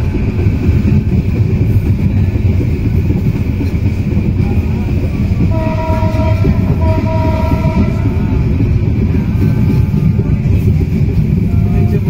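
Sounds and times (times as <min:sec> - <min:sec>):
train wheels rumbling on track: 0:00.0 - 0:12.0
faint train horn tone: 0:05.4 - 0:08.5.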